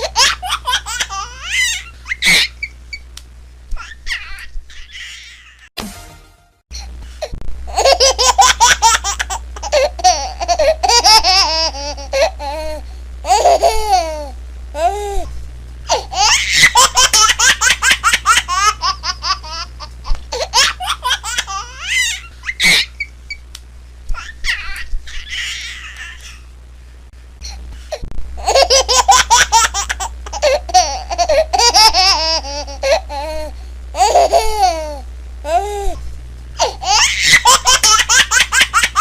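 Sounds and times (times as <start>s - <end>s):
baby laughing: 0.0s - 2.7s, 3.8s - 5.7s, 7.7s - 14.9s, 15.9s - 23.1s, 24.1s - 26.5s, 28.4s - 35.6s, 36.6s - 39.0s.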